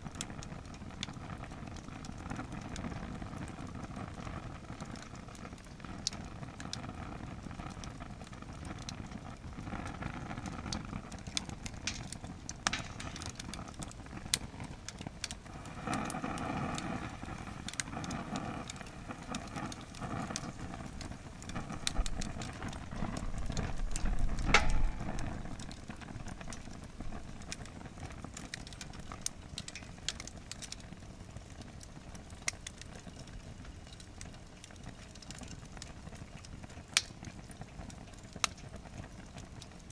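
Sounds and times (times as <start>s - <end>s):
campfire crackling and popping: 0.0s - 39.9s
rush of flame: 0.0s - 39.9s
low rumble: 20.6s - 27.4s.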